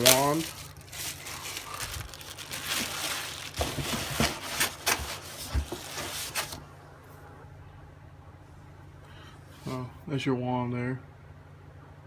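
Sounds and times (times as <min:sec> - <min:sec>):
packaging rustling and scraping: 0:00.0 - 0:06.6.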